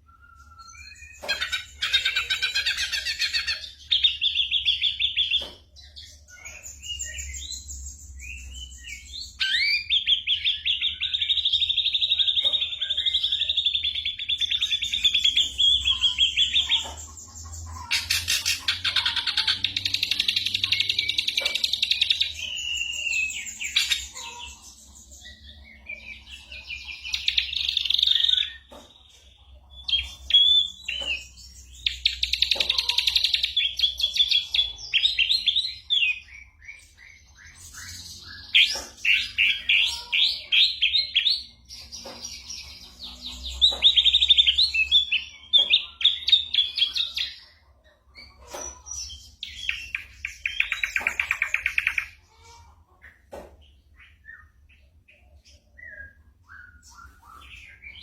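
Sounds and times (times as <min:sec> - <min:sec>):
bird singing whistles and trills: 0:00.0 - 0:03.6.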